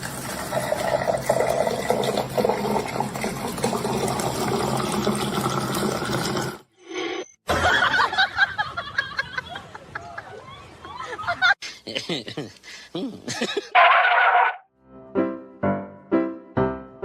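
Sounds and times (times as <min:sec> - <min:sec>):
water running and splashing: 0:00.0 - 0:06.6.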